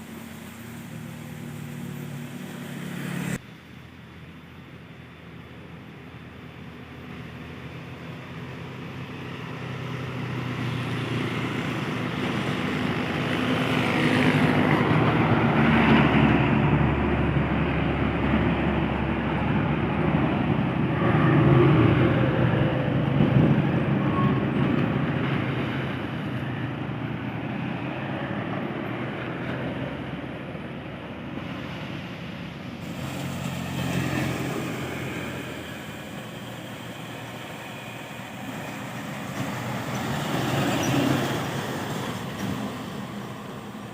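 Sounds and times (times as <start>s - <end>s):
truck diesel engine climbing: 0.0s - 43.9s.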